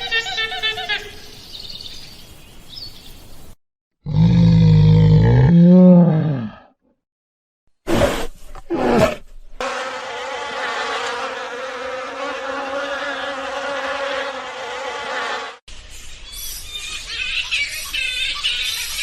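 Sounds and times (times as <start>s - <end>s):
bee buzzing: 9.6s - 15.6s.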